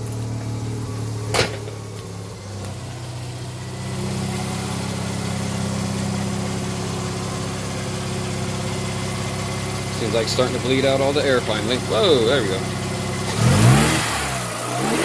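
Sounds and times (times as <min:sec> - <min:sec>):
rotary engine idling: 0:00.0 - 0:13.8.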